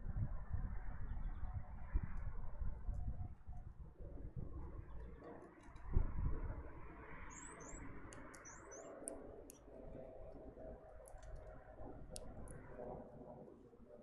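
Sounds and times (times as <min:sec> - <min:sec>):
high down-slurred bird chirps: 0:07.3 - 0:09.1
sharp high bird ticks: 0:07.3 - 0:10.4, 0:11.0 - 0:12.8.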